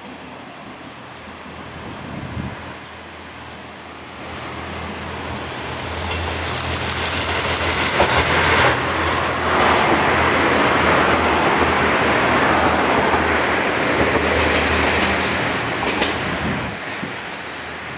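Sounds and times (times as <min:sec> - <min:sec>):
train running noise rushing: 0:00.0 - 0:17.9
rapid clicks: 0:06.4 - 0:08.4.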